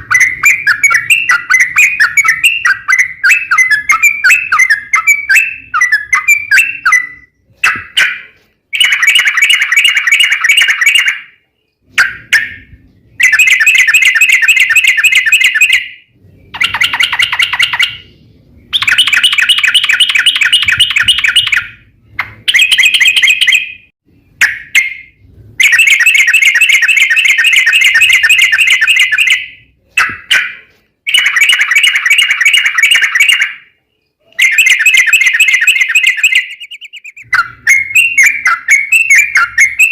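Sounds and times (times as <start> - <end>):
bird singing rapid chattering bursts: 16.5 - 18.1, 18.7 - 21.7, 34.4 - 39.9.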